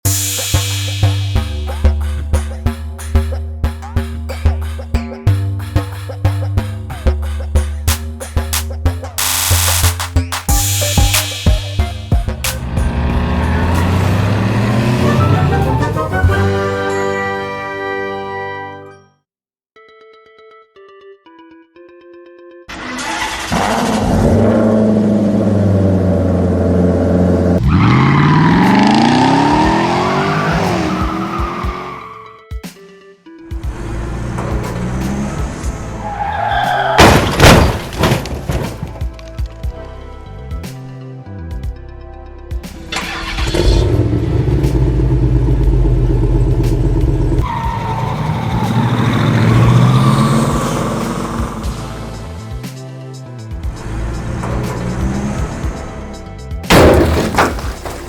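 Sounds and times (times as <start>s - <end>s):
engine revving high: 12.4s - 16.2s, 22.7s - 32.2s, 33.6s - 36.9s, 42.9s - 52.3s, 53.6s - 56.2s.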